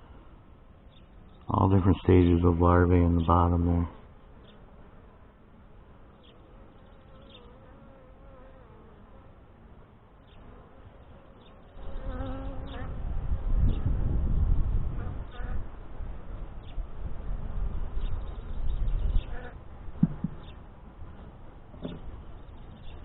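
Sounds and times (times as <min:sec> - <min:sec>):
honey bees buzzing: 0:02.1 - 0:13.1.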